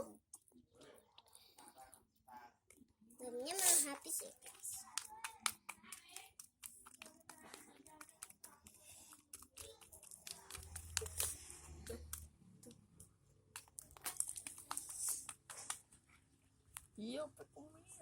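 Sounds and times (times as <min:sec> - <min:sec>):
slime kneaded with sticky clicks: 0:04.1 - 0:16.0.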